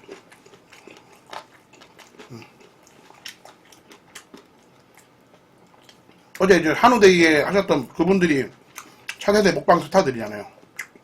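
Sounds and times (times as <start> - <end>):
person chewing food: 0.0 - 6.4, 8.6 - 9.2, 10.6 - 11.0.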